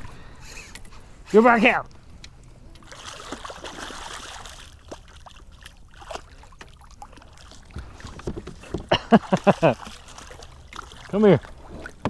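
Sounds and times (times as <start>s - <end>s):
water splashing and sloshing: 0.0s - 12.0s
light clicks and knocks: 7.7s - 9.0s.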